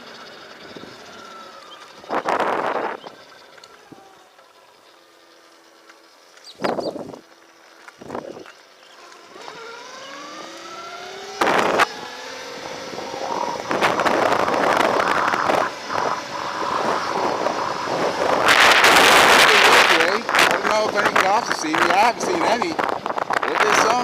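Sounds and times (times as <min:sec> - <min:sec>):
electric motorcycle motor whine: 0:00.0 - 0:24.0
wind noise on microphone: 0:02.0 - 0:03.2, 0:06.6 - 0:07.2, 0:08.0 - 0:08.5, 0:11.3 - 0:24.0.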